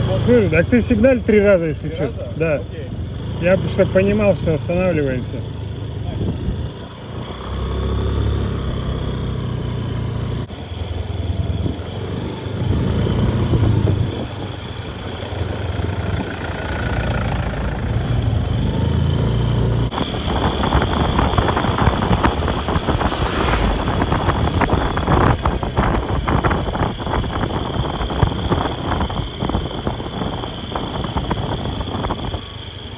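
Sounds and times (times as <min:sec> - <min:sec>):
motorbike engine rumble: 0:00.0 - 0:32.9
wind buffeting microphone: 0:06.0 - 0:06.8, 0:19.8 - 0:32.9.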